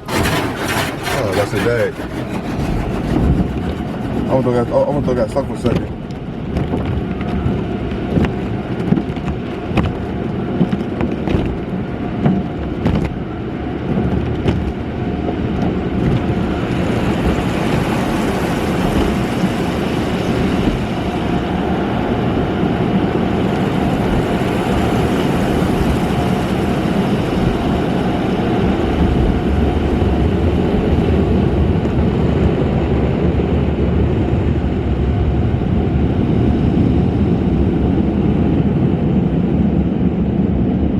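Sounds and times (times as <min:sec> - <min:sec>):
sharp knocks: 0:00.0 - 0:05.9
car wash rumble and hiss: 0:11.4 - 0:31.2.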